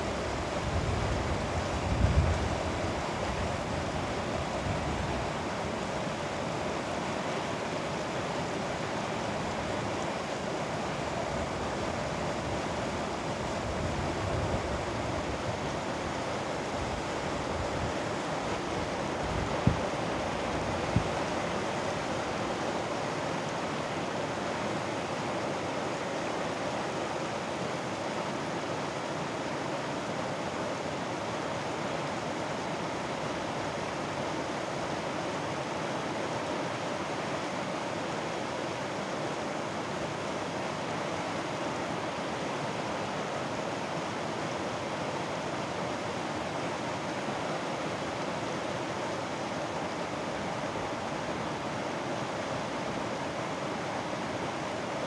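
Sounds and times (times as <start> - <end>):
stream flowing over rocks: 19.9 - 55.0.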